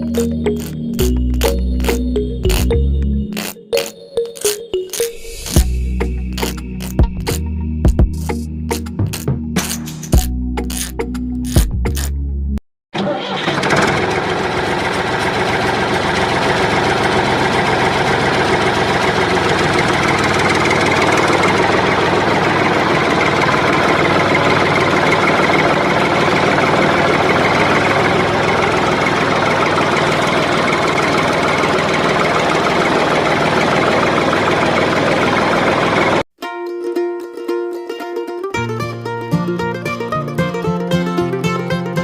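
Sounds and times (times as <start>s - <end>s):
engine idling with knocking beat: 13.9s - 36.2s.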